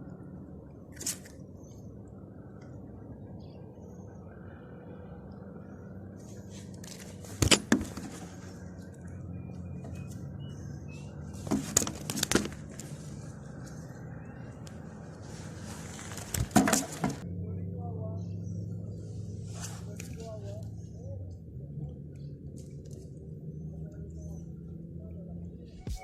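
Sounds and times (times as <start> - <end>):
low outdoor rumble: 0.0 - 26.0
sharp clicks and knocks: 11.4 - 12.9.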